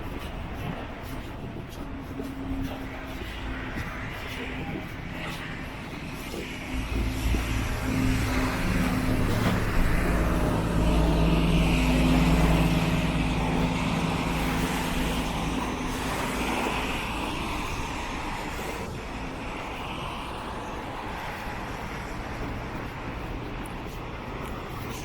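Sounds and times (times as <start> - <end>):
vehicle engine running: 6.8 - 17.4.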